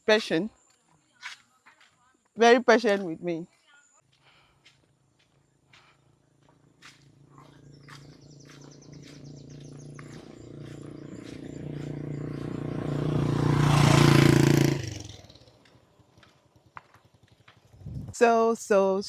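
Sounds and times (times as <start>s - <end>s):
vehicle engine passing: 6.1s - 18.2s.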